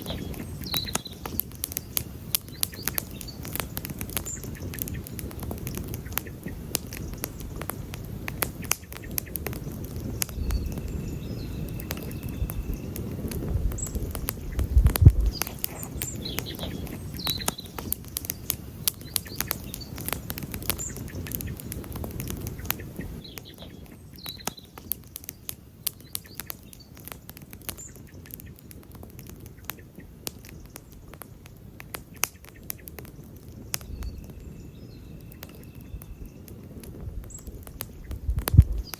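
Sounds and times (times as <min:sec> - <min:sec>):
wood campfire crackling: 0:00.0 - 0:38.9.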